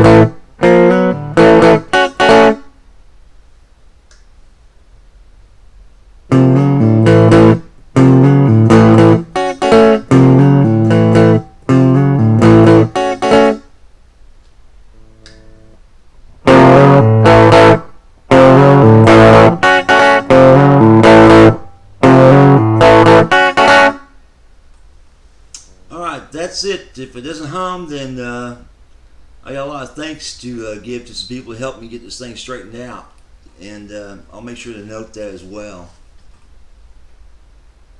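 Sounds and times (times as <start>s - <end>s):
electric guitar strummed chords: 0.0s - 2.8s, 6.2s - 13.7s, 16.4s - 24.2s
low amplifier hum: 0.0s - 37.9s.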